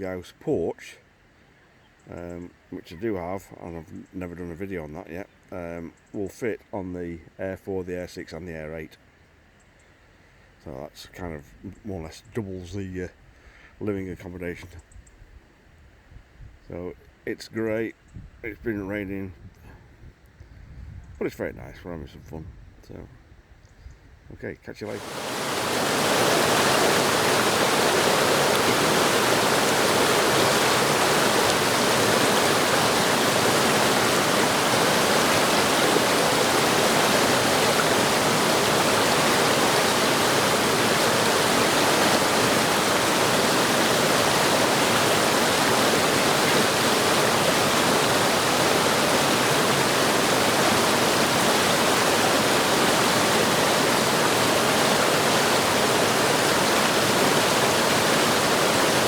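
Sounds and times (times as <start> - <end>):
waterfall and stream rushing: 24.9 - 59.0.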